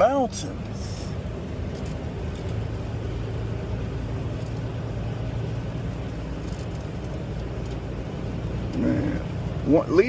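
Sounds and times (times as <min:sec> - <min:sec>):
truck engine and tyre drone: 0:00.0 - 0:10.0.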